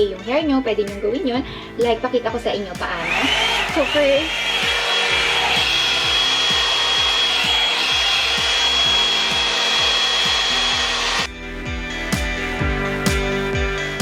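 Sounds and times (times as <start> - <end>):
hot-air brush dryer whining: 2.8 - 11.3.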